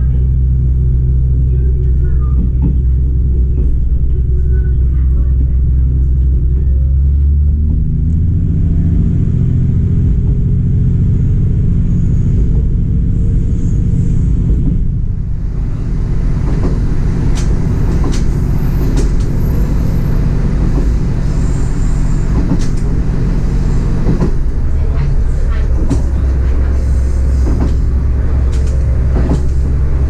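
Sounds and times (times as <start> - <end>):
diesel railcar rumbling: 0.0 - 30.0
wheels clicking over rail joints: 16.4 - 30.0.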